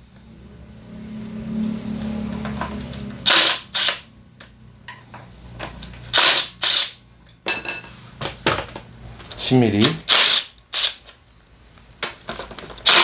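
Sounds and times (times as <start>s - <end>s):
power tool bursts: 3.2s - 4.1s, 6.1s - 7.0s, 10.1s - 11.0s.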